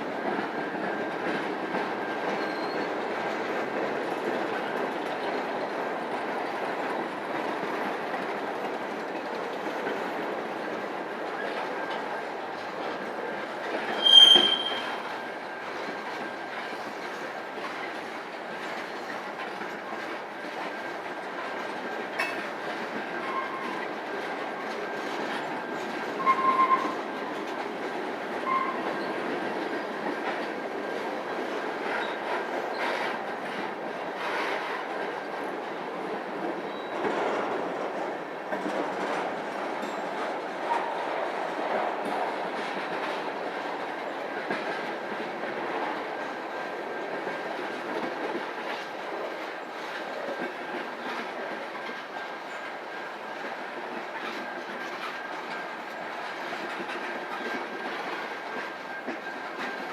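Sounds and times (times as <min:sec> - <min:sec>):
railroad cars rumbling past: 0:00.0 - 0:59.9
short tones: 0:14.0 - 0:15.0.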